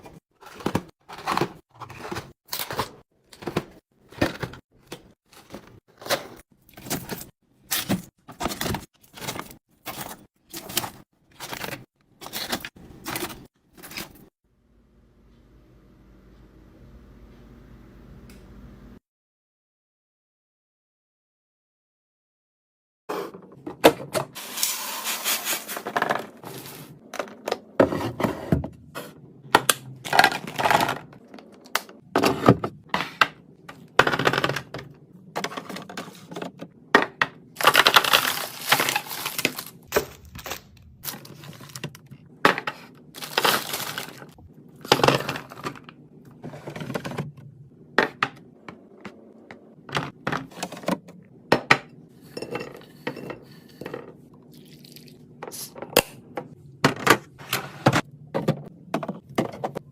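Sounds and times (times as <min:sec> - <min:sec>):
packaging rustling: 0:37.6 - 0:42.0, 0:43.2 - 0:45.8.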